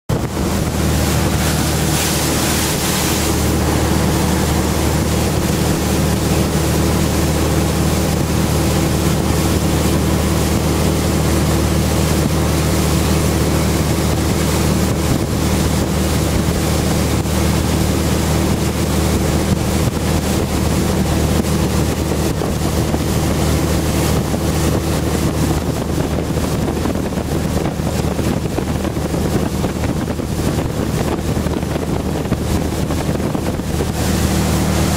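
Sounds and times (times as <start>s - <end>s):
boat engine running: 0.1s - 34.9s
water rushing past hull: 0.1s - 34.9s
wind noise on microphone: 0.1s - 34.9s.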